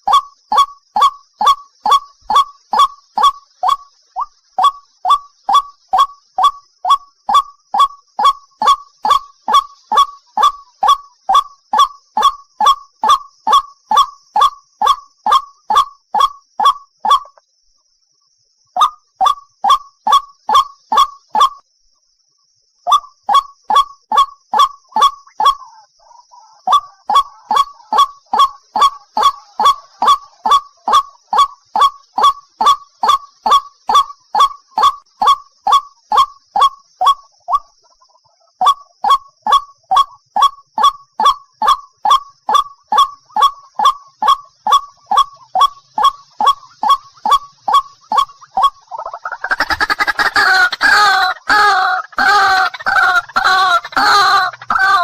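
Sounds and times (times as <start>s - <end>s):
waterhen calling: 0.0s - 17.4s, 22.9s - 55.0s.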